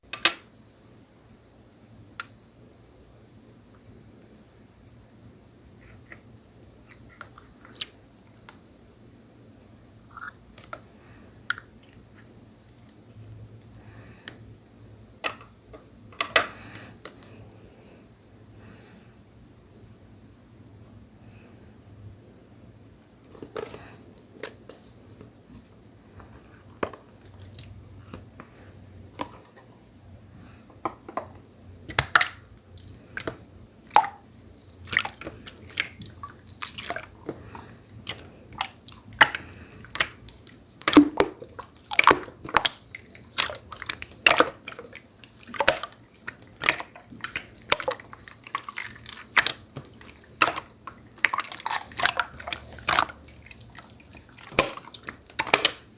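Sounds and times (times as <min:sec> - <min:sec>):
slime squishing by hand: 0:31.8 - 0:55.9.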